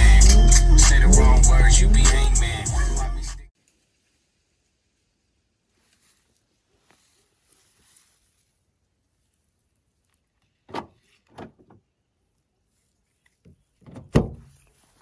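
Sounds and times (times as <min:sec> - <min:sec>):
knocks and clunks: 0:13.9 - 0:14.6.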